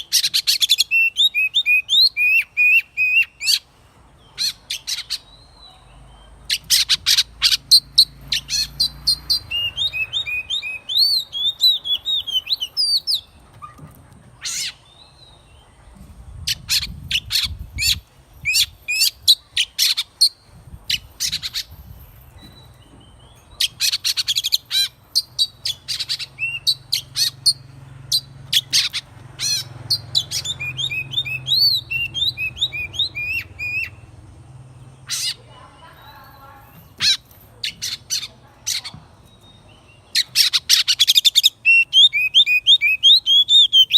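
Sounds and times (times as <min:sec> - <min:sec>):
bird singing varied song: 0:00.0 - 0:43.9.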